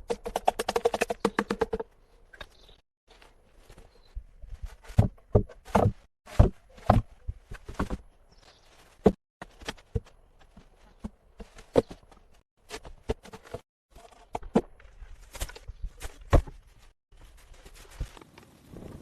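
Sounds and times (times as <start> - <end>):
knocks and thuds of building work: 4.6 - 8.1.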